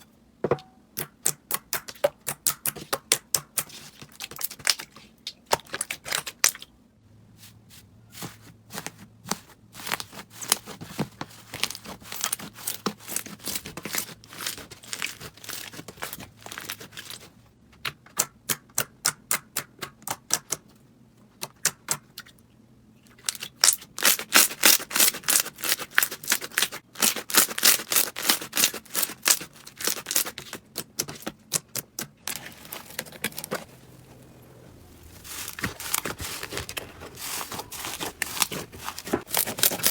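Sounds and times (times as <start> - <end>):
slime crackling and popping: 31.5 - 39.9.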